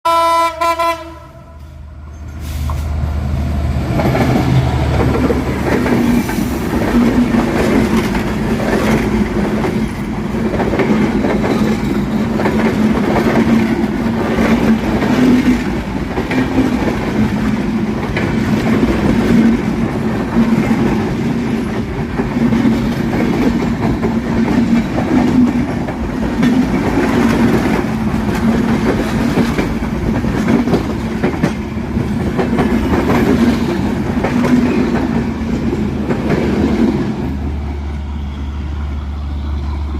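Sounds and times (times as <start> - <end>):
train horn: 0.0 - 1.8
train rumbling at speed: 0.1 - 39.9.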